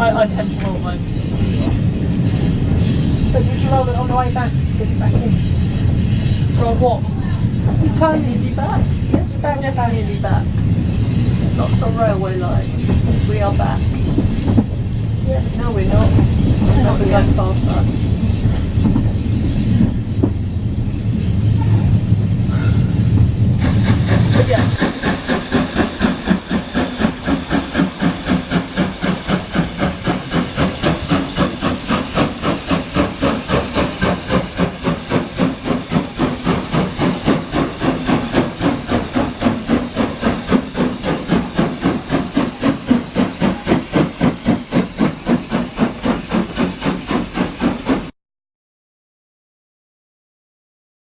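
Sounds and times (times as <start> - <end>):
steam locomotive chuffing: 0.0 - 48.2.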